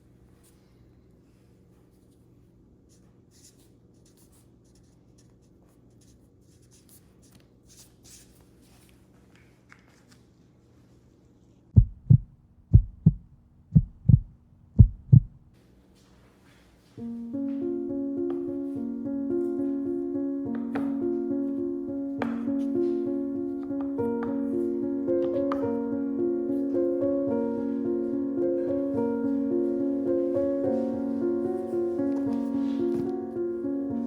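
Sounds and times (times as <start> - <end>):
low dull thumps: 11.8 - 15.5
piano music: 17.0 - 34.0.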